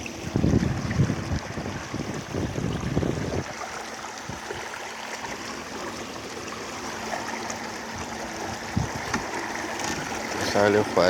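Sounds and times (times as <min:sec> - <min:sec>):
wind buffeting microphone: 0:00.0 - 0:04.7, 0:07.9 - 0:10.5
water washing along boat hull: 0:00.0 - 0:11.0.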